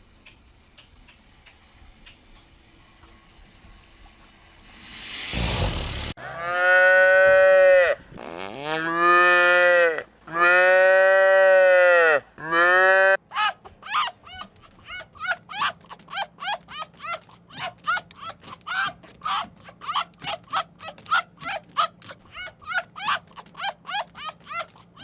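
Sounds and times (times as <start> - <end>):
cow mooing: 6.2 - 8.0.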